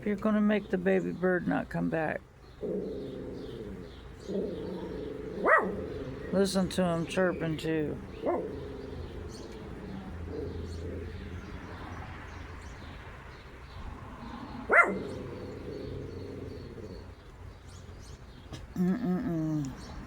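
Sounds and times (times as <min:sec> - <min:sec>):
small birds chirping: 0:00.0 - 0:20.0
dog yip: 0:14.7 - 0:15.0.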